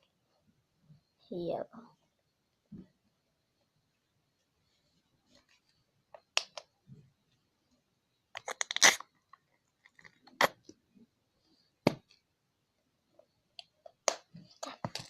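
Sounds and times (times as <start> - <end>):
crackly handling noises: 4.4 - 7.4, 8.4 - 10.8.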